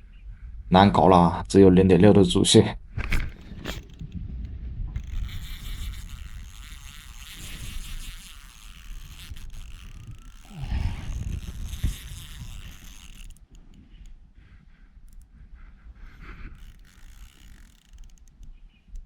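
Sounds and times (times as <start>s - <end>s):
low rumble on microphone: 2.8s - 16.8s
fishing reel drag buzzing: 3.0s - 4.2s, 5.0s - 14.2s, 15.0s - 15.3s, 15.9s - 19.0s.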